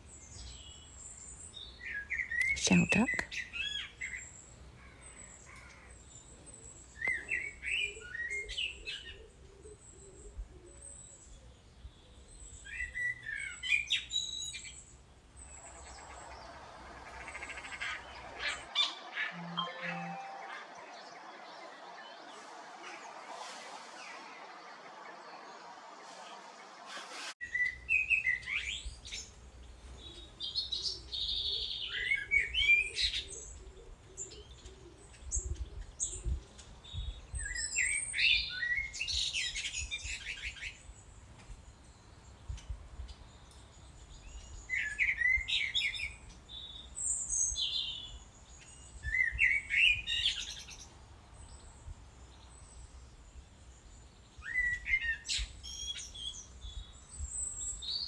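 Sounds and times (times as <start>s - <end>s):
songbird warbling: 1.6s - 4.2s.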